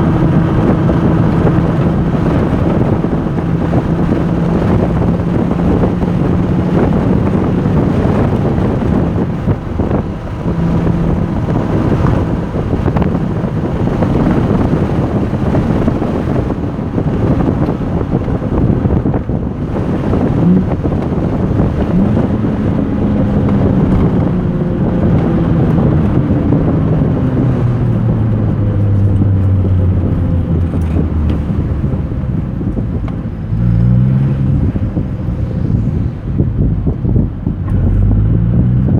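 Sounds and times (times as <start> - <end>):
car engine running hard: 0.0 - 38.9
wind noise on microphone: 0.0 - 38.9.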